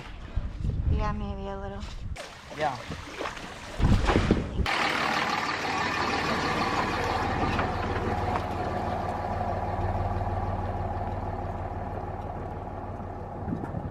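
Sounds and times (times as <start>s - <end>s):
vehicle engine hum: 4.7s - 13.9s.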